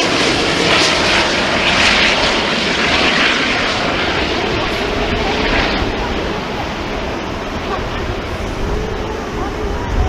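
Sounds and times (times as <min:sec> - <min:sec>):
airliner jet engines roaring: 0:00.0 - 0:10.0.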